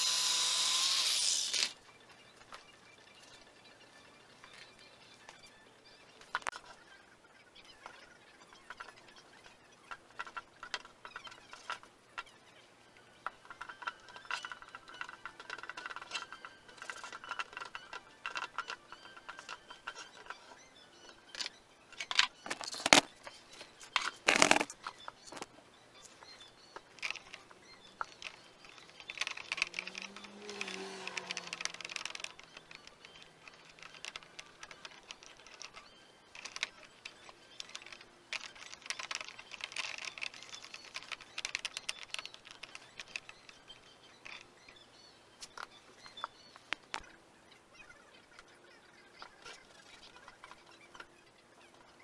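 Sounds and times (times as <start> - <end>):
metal tools clinking and knocking: 22.1 - 23.1.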